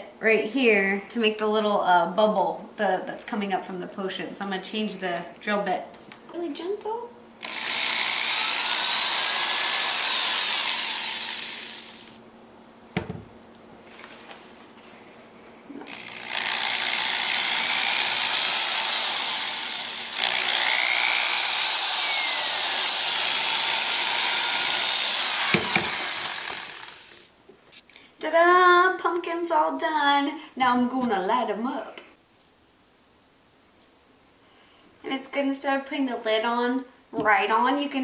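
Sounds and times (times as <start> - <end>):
power drill boring into pumpkin: 7.4 - 12.2, 15.8 - 27.3.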